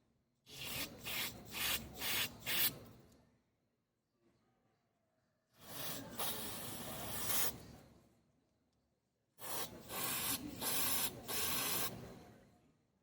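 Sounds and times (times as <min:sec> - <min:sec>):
aerosol spray hissing: 0:05.6 - 0:07.6, 0:09.4 - 0:12.0.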